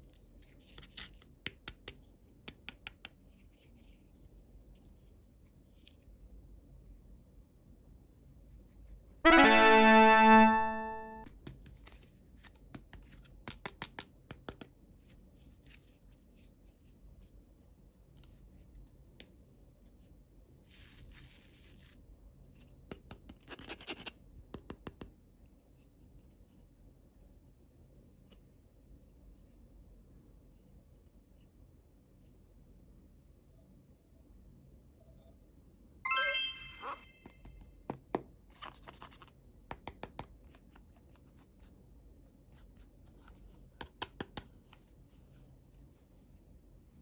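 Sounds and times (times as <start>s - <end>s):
piano-like chime: 9.3s - 11.3s, 36.1s - 37.3s.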